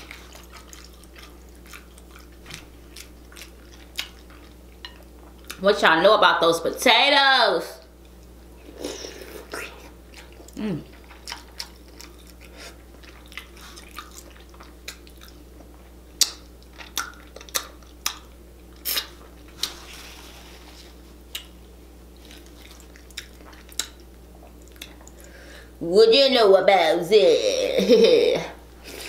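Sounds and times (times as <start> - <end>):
person chewing: 0.0 - 5.6, 8.0 - 25.5.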